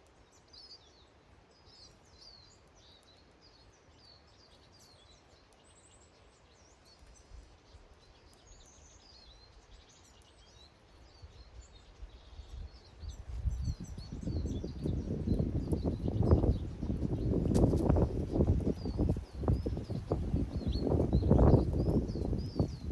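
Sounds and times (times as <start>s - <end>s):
small birds chirping: 0.0s - 22.9s
low rumbling crackling noise: 13.0s - 22.9s.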